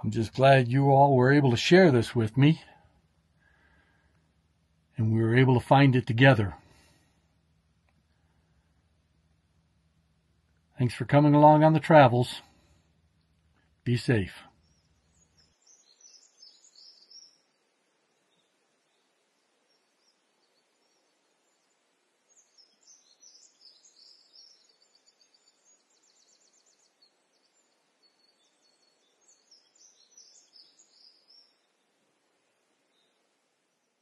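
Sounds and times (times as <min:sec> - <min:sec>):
bird trill: 0:14.2 - 0:17.6, 0:19.7 - 0:31.8.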